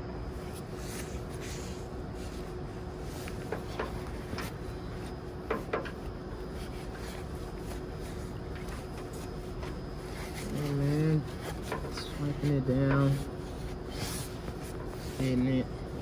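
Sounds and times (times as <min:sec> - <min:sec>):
steady low hum: 0:00.0 - 0:16.0
cleaning tools tapping: 0:08.5 - 0:15.4.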